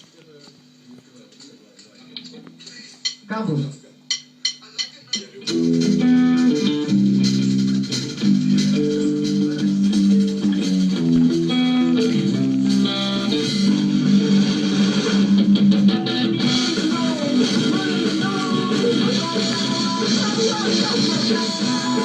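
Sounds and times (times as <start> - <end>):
guitar rock music: 5.4 - 22.0.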